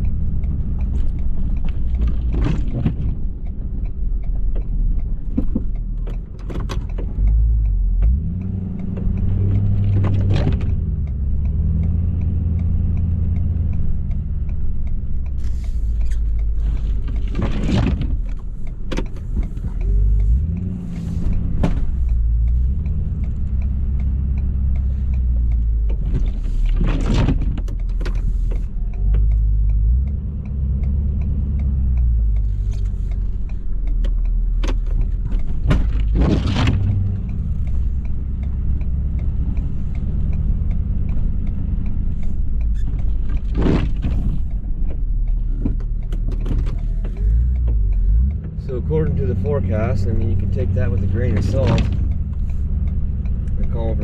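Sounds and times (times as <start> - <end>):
diesel truck engine plowing snow: 43.4 - 54.0.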